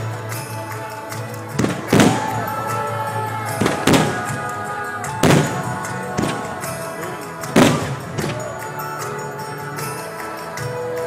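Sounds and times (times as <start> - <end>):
taiko drums and shamisen music: 1.3 - 11.0
fireworks booming: 1.6 - 8.7.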